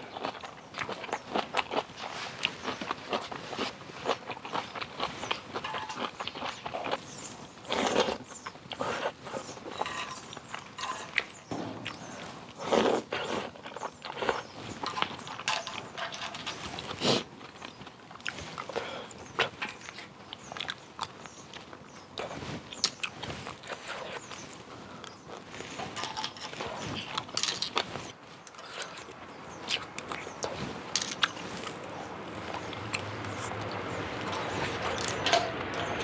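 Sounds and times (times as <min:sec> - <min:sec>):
chewing: 0:00.0 - 0:36.0
slurping noodles: 0:12.6 - 0:17.3.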